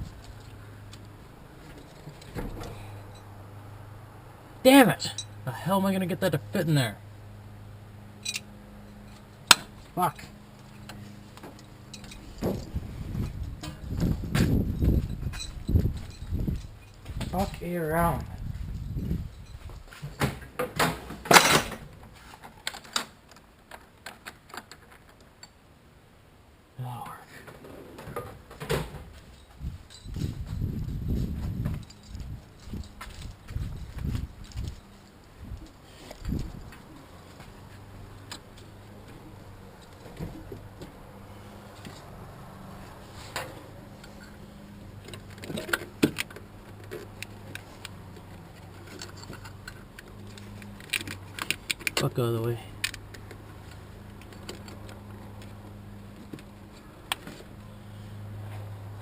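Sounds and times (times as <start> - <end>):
metal tools clinking: 1.6 - 3.3, 5.0 - 5.4, 8.2 - 12.7, 14.7 - 17.5, 18.8 - 20.2, 29.2 - 30.4, 31.8 - 37.1, 45.0 - 52.2, 52.8 - 55.4
clicks of tools and metal parts: 8.2 - 12.7, 19.3 - 25.6, 45.0 - 52.2, 52.8 - 57.6.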